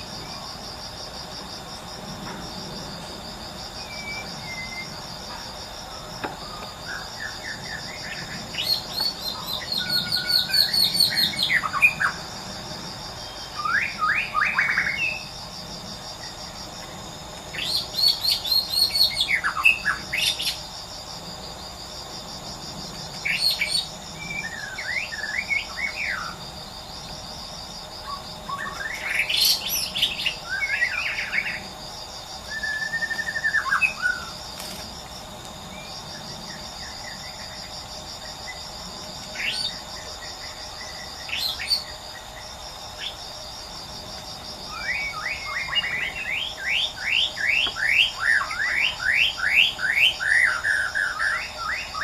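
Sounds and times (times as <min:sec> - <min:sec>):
pulsing insect chorus: 0:00.0 - 0:52.0
bird singing whistled phrases: 0:32.5 - 0:33.6.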